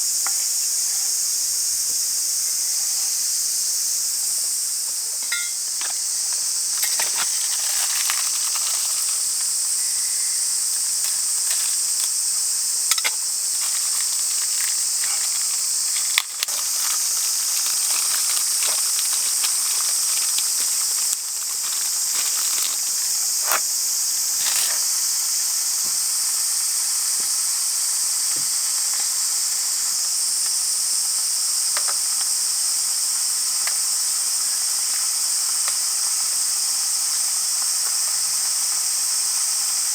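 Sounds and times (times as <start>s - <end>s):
insects droning: 0.0s - 39.9s
small clicks and crackles: 5.8s - 9.6s, 12.9s - 23.6s.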